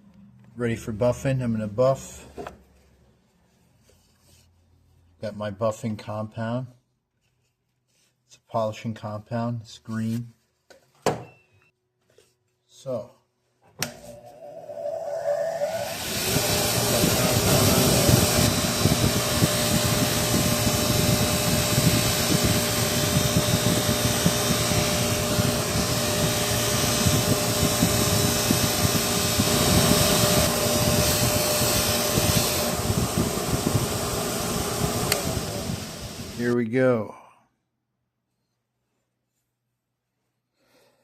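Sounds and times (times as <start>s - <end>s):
buffing wheel polishing metal: 14.1s - 36.4s.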